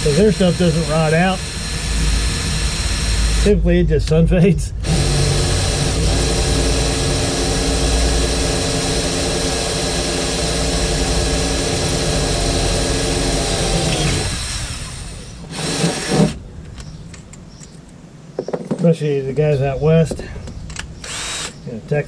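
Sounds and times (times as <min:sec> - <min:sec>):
handheld power tool running: 0:00.0 - 0:03.6, 0:04.8 - 0:16.4, 0:21.0 - 0:21.6.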